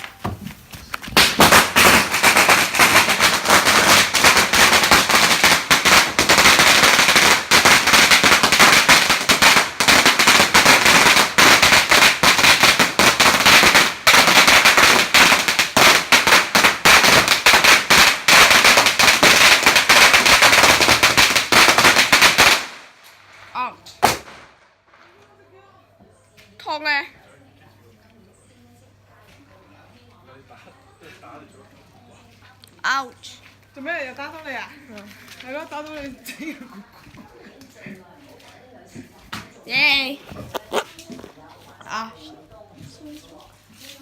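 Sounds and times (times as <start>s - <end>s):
firecrackers banging: 0.0s - 25.2s.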